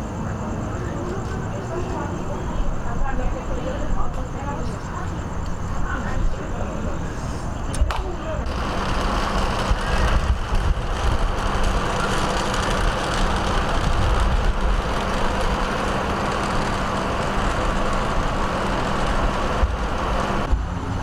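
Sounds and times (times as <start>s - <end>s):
vehicle engine running: 8.4s - 21.0s.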